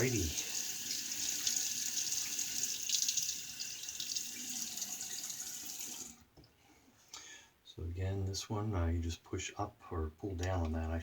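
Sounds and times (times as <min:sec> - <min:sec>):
water running from tap: 0:00.0 - 0:06.2.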